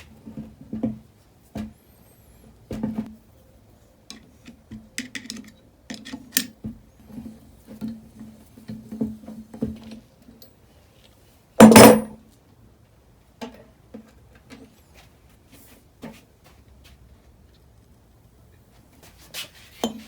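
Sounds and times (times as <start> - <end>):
loud metallic clank: 11.6 - 12.1.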